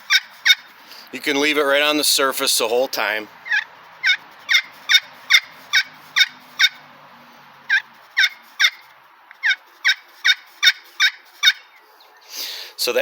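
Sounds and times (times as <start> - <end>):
turkey call hen yelps: 0.0 - 0.8, 3.4 - 6.9, 7.7 - 12.4.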